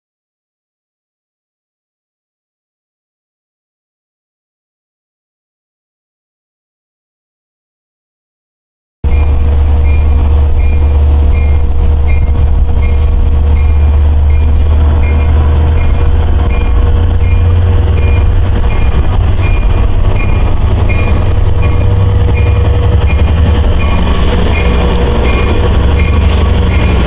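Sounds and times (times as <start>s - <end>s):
electric train rumbling past: 9.0s - 27.0s
crossing bell ringing: 9.1s - 27.0s.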